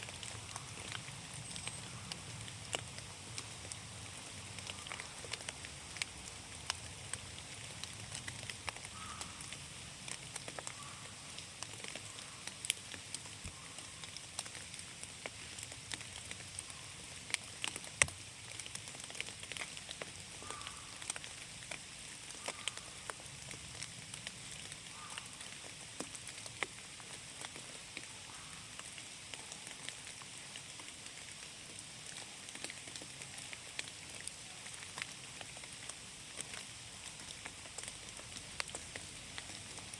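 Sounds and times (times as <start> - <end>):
rain falling in a forest: 0.0 - 39.9.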